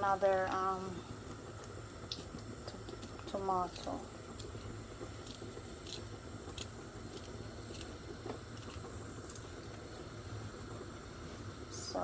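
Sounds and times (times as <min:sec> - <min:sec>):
light sizzling ticks: 0:01.6 - 0:07.9.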